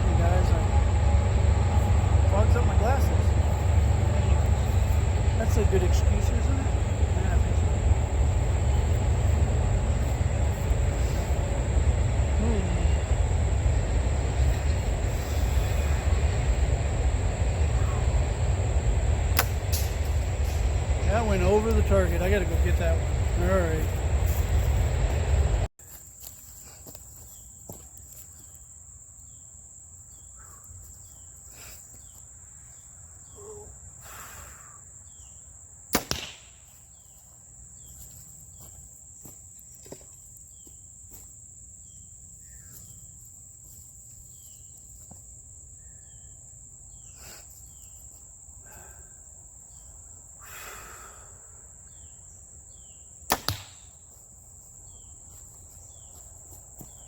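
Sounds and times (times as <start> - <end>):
high-pitched insect drone: 0.0 - 25.7
bowstring snap: 19.4 - 19.9, 36.0 - 36.6, 53.3 - 53.9
arrow hitting target: 19.4 - 20.0, 36.0 - 36.6, 53.3 - 53.8.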